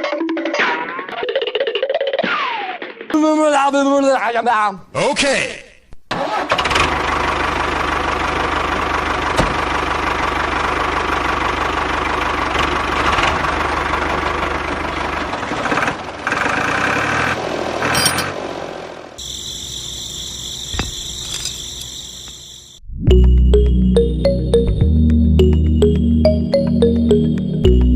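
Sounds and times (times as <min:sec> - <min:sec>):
steady high tones: 0:19.2 - 0:27.9.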